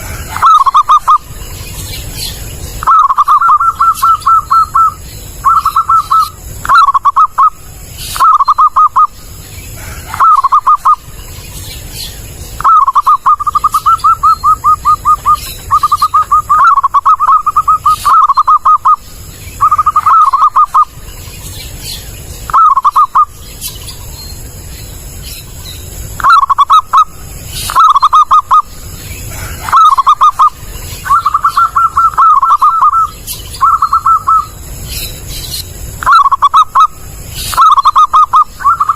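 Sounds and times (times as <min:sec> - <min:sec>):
dove rolling coo song: 0:00.0 - 0:38.9.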